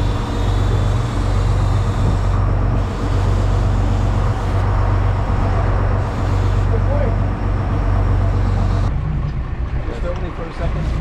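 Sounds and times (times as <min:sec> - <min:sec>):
boat engine humming: 0:00.0 - 0:11.0
constant rushing noise: 0:00.0 - 0:11.0.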